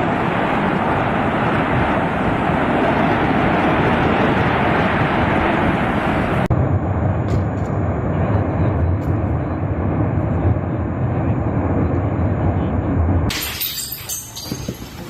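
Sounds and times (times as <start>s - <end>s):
volcano roaring: 0.0s - 13.3s.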